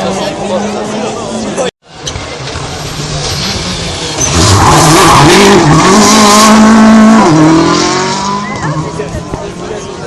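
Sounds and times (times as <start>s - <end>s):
rally car engine revving: 2.0s - 10.0s.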